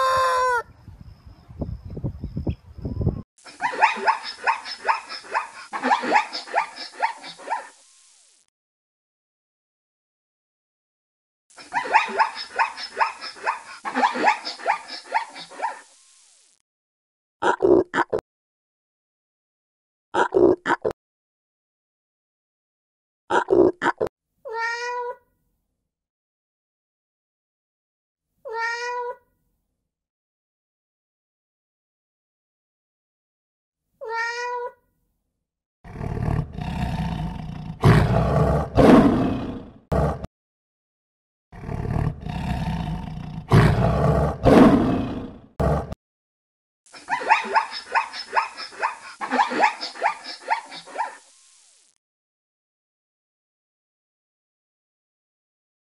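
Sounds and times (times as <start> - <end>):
cat meowing: 24.5 - 25.2, 28.5 - 29.2, 34.0 - 34.8
lion roaring: 35.9 - 40.3, 41.6 - 46.0
zebra yelping barks: 47.0 - 51.2.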